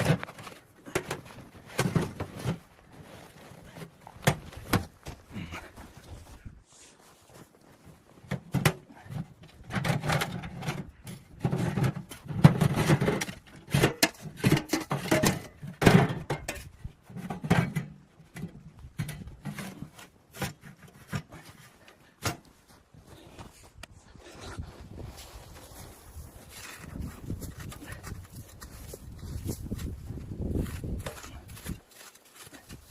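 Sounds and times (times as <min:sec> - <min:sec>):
objects knocking and clattering: 0:08.2 - 0:21.5.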